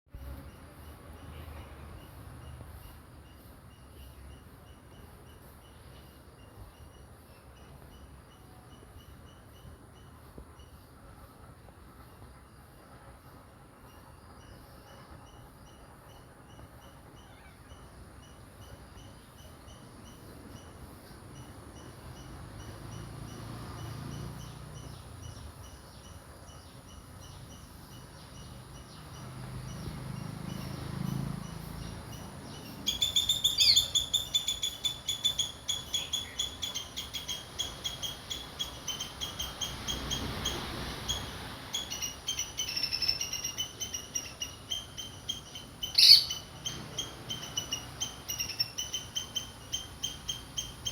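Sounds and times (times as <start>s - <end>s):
bird chirping: 13.8s - 50.9s.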